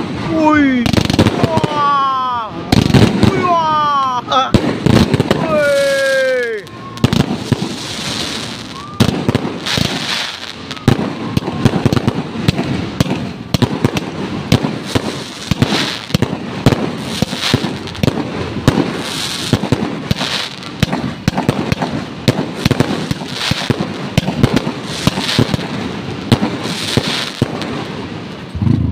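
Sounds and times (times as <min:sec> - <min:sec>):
fireworks bangs and crackling: 0:00.0 - 0:28.9.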